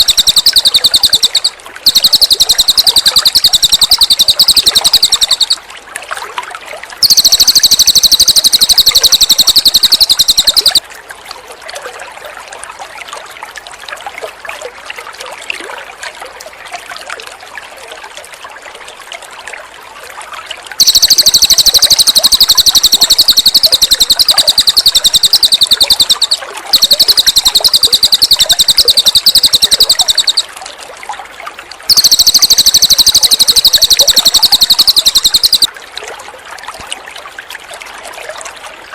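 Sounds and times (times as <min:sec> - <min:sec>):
songbird trilling: 0:00.0 - 0:05.6, 0:07.0 - 0:10.8, 0:20.8 - 0:30.5, 0:31.9 - 0:35.7
trickling water: 0:00.0 - 0:38.9.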